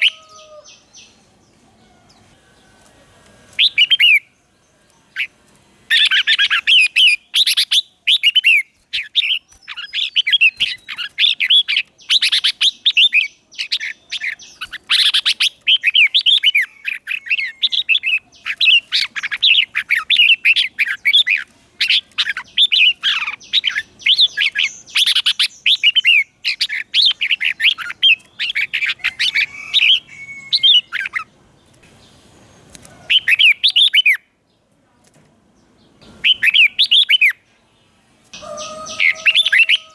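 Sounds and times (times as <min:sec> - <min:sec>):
bird singing whistled phrases: 0:36.2 - 0:37.4.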